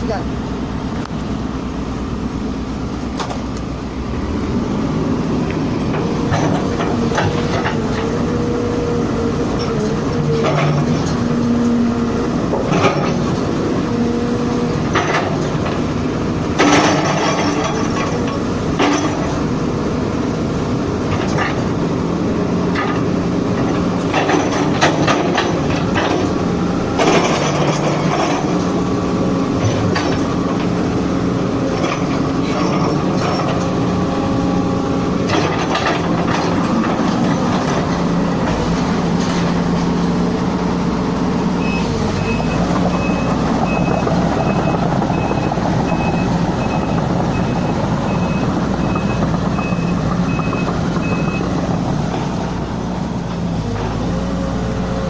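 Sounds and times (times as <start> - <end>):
excavator diesel engine running: 0.0 - 55.0
travel alarm beeping: 41.6 - 51.5.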